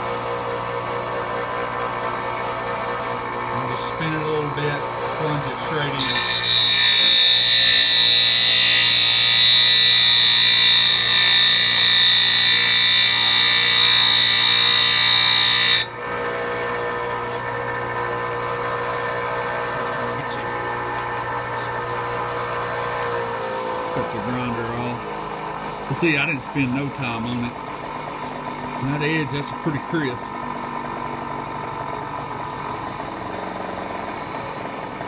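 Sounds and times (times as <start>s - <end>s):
grinder motor humming: 0.0s - 25.5s, 31.2s - 35.0s
grinding wheel grinding metal: 3.6s - 15.9s.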